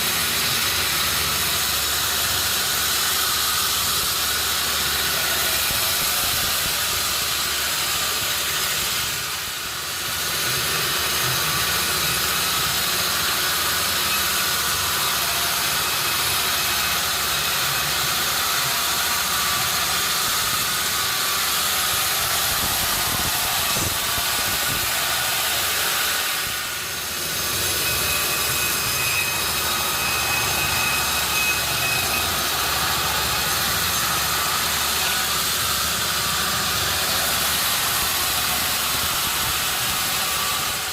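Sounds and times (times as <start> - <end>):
sawmill running: 0.0 - 40.9.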